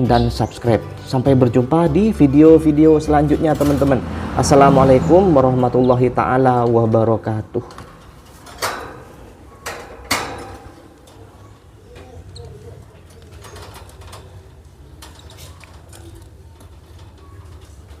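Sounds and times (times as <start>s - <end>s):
faint bird calls: 11.1s - 13.8s.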